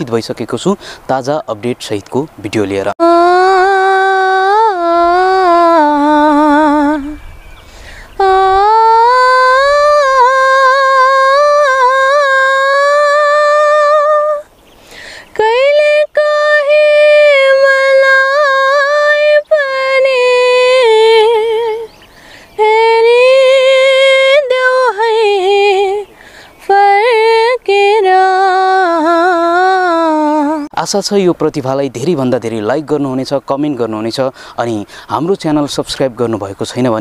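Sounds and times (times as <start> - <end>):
singer breathing: 0.8 - 1.1, 7.6 - 8.2, 14.8 - 15.3, 22.1 - 22.6, 26.1 - 26.6, 34.3 - 35.2
girl singing unaccompanied: 3.0 - 30.8.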